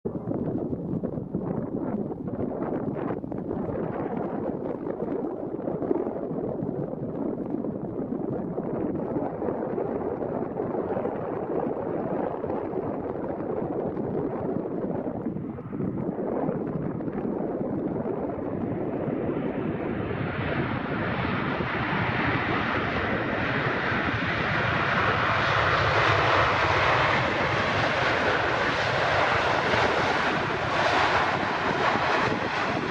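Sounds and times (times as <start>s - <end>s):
jet airliner engine roar: 0.1s - 32.9s.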